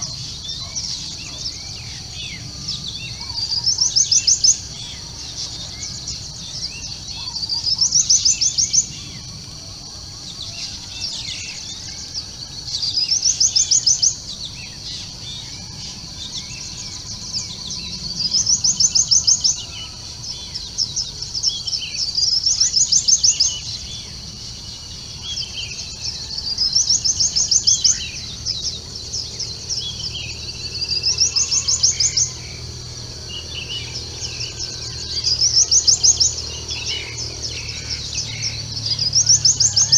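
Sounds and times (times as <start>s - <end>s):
other birds calling softly: 0.0s - 39.9s
bird song of rising high notes: 13.2s - 39.9s.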